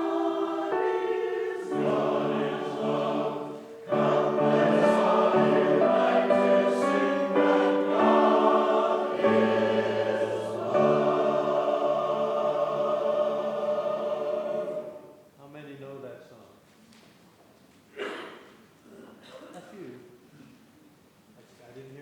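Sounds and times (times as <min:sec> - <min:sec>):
choir singing a hymn: 0:00.0 - 0:15.3.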